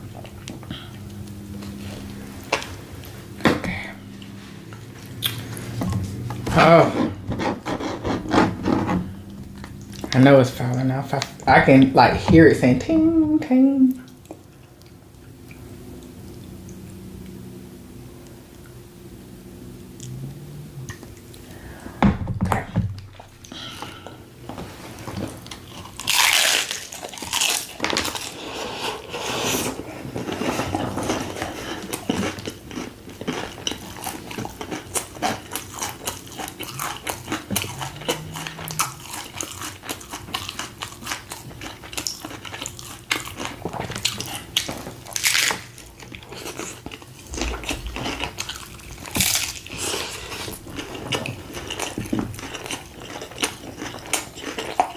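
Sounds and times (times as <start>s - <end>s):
crunchy chewing and biting: 25.2s - 54.9s.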